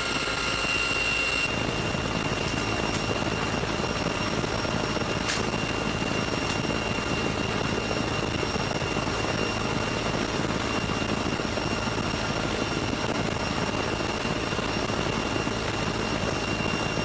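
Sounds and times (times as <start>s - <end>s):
helicopter rushing noise: 0.0s - 17.0s
high-pitched whine: 0.0s - 17.0s.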